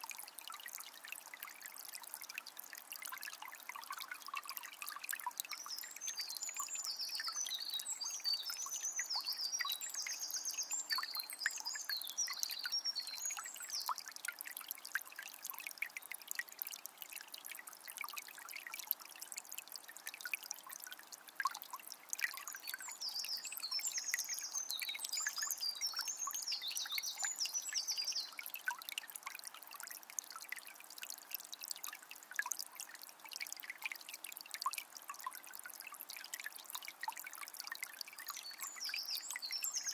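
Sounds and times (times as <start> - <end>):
river trickling over stones: 0.0 - 39.9
songbird singing: 5.4 - 14.0, 22.4 - 28.4, 38.3 - 39.9.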